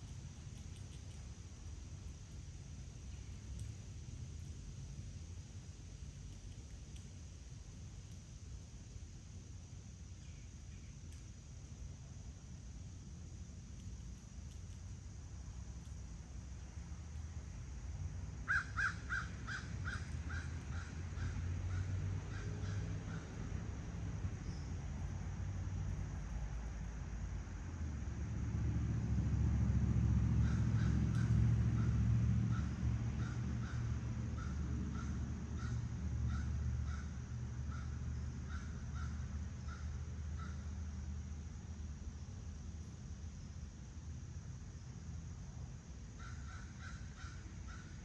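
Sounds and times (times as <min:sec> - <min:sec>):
low background rumble: 0:00.0 - 0:48.0
bird harsh calls: 0:18.5 - 0:23.3
crow cawing: 0:18.5 - 0:23.3, 0:46.2 - 0:47.9.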